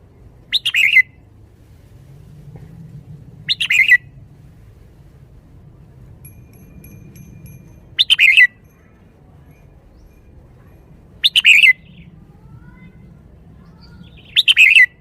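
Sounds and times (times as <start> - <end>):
bird singing: 6.6 - 10.6, 11.2 - 12.2, 13.6 - 15.0.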